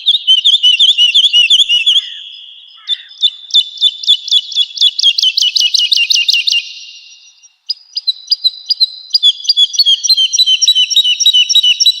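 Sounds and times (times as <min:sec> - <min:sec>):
bird singing rapid notes: 0:00.0 - 0:12.0.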